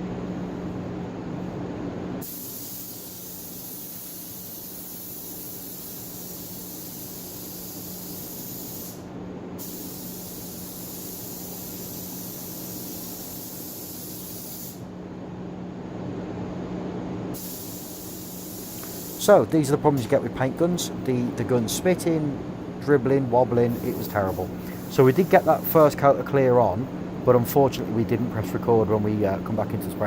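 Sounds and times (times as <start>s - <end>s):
steady low hum: 0.0s - 30.0s
paint spray gun hissing: 2.2s - 14.9s, 17.4s - 19.4s, 23.7s - 25.9s.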